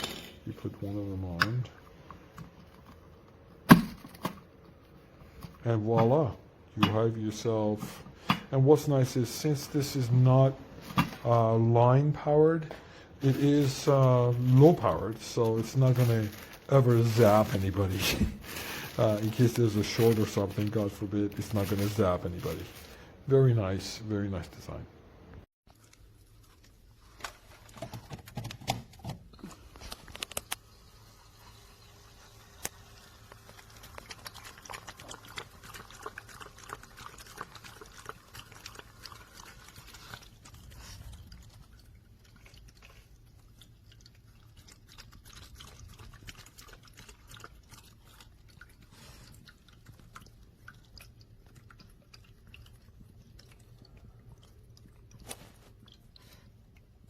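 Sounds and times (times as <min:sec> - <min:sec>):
cat lapping water: 0:32.9 - 0:57.0.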